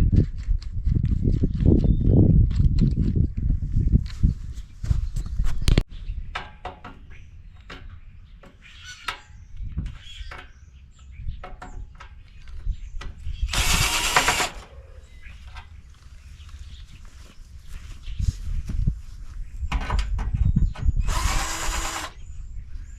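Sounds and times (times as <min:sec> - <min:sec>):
metal clanks and knocks: 0:06.3 - 0:09.3.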